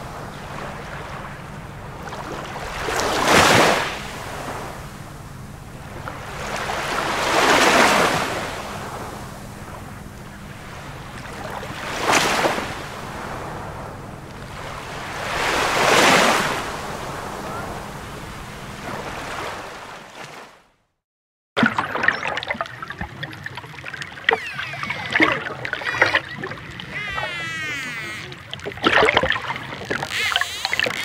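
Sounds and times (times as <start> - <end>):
ocean waves washing in: 0.0 - 20.7.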